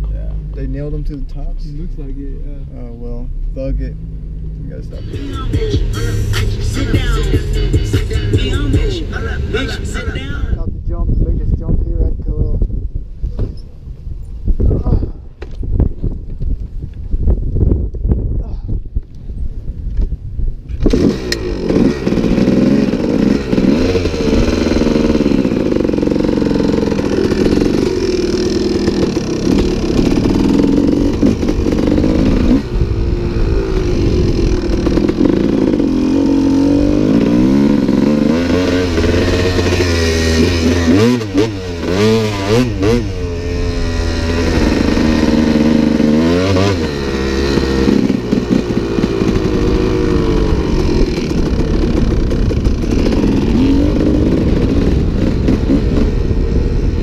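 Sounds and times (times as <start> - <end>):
dirt bike engine revving: 3.8 - 10.6, 20.7 - 57.0.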